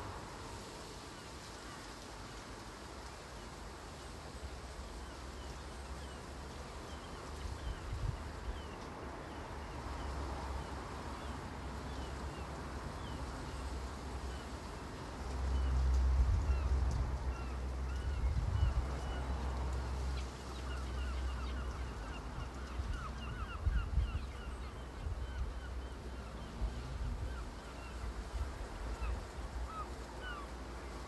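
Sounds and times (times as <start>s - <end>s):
wind buffeting microphone: 18.0s - 19.0s, 22.3s - 25.7s.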